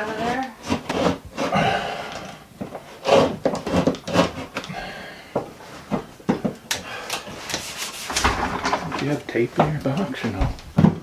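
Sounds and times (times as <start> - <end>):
hand tool scraping drywall: 0.0 - 1.8, 2.7 - 4.7, 7.2 - 8.9.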